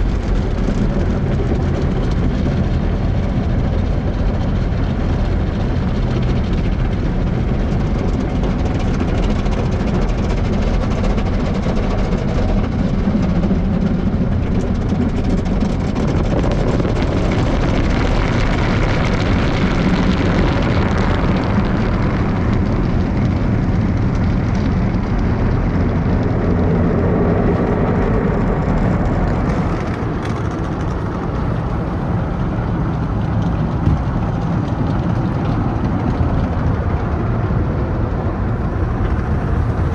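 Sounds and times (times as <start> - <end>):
car wash equipment roaring: 29.0 - 39.9.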